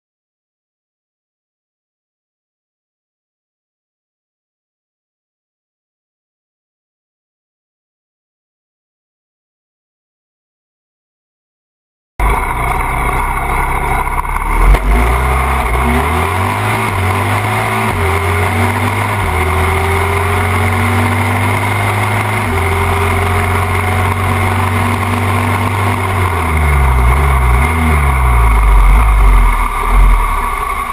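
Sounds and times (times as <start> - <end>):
motorcycle engines racing: 12.2 - 30.9.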